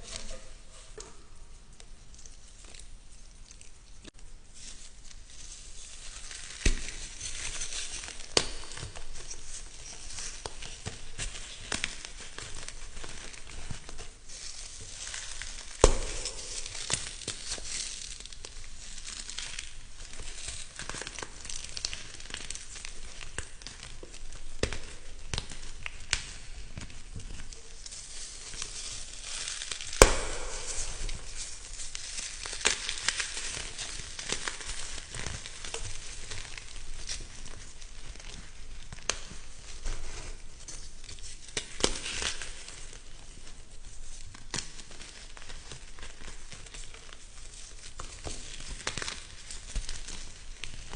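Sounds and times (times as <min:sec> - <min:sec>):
crisp material crunching: 0:04.6 - 0:50.9
sharp snaps: 0:15.8 - 0:17.4, 0:29.9 - 0:32.0.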